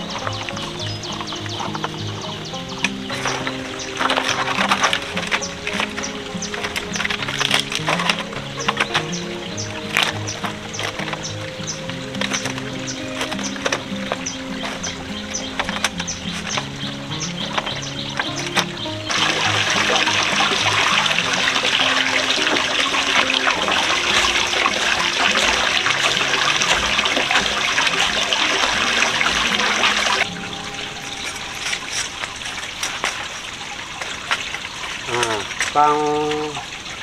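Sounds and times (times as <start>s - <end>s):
background music: 0.0s - 33.4s
water pouring: 0.0s - 37.0s.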